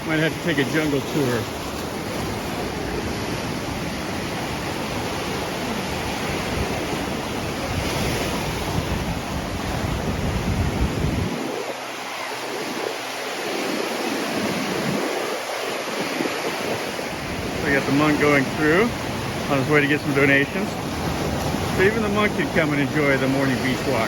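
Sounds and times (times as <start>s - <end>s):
surf washing up beach: 0.0s - 24.0s
wind buffeting microphone: 0.0s - 24.0s.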